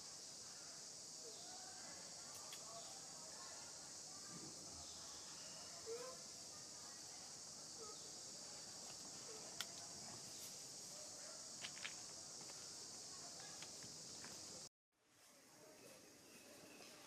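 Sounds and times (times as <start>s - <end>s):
high-pitched insect chorus: 0.0s - 14.7s.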